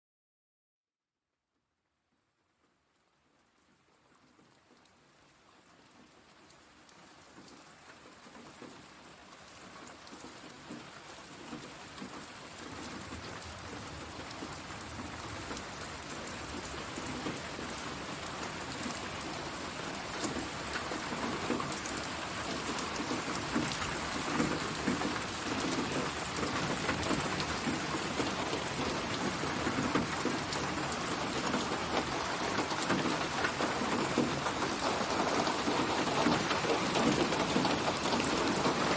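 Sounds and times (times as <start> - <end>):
steady rain: 2.0 - 38.9
raindrop hits: 20.1 - 38.9.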